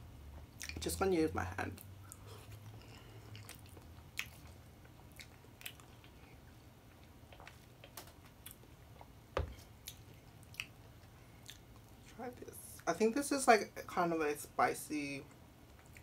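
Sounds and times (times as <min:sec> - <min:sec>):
soft chewing: 0:00.3 - 0:00.9, 0:01.7 - 0:12.1, 0:15.3 - 0:16.0.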